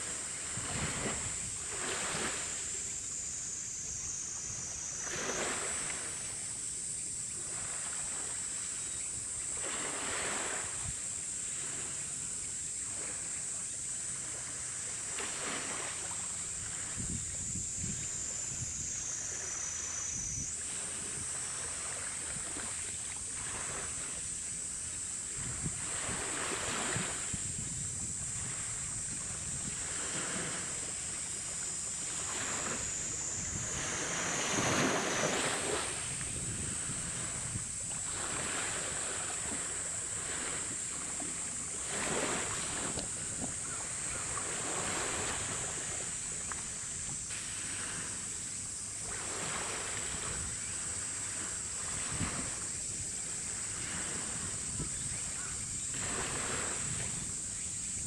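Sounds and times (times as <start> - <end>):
wind gusting on microphone: 0.0 - 2.6, 16.4 - 19.3, 25.3 - 40.9, 51.4 - 58.0.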